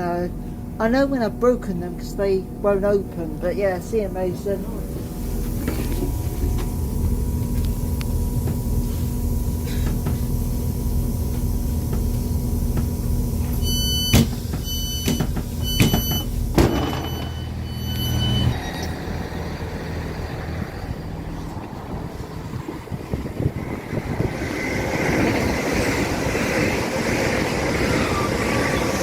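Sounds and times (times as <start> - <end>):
train engine idling hum: 0.0 - 29.0
door-warning beeps: 13.5 - 19.0
doors shutting knocks: 14.1 - 17.5.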